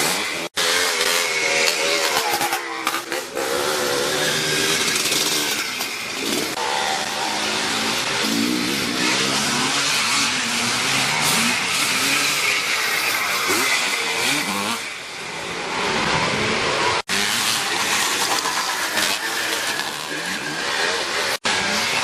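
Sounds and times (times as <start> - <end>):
motocross bike engines revving: 0.0 - 22.0.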